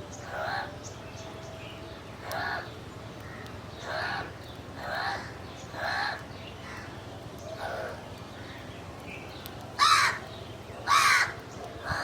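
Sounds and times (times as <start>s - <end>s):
crow cawing: 9.8s - 10.2s, 10.9s - 12.0s.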